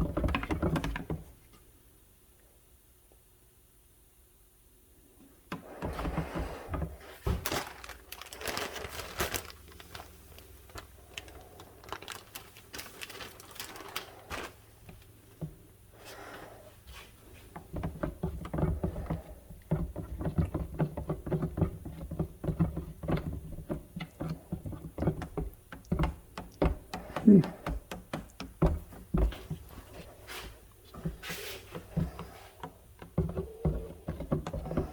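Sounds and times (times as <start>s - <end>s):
objects being handled: 5.5s - 34.9s.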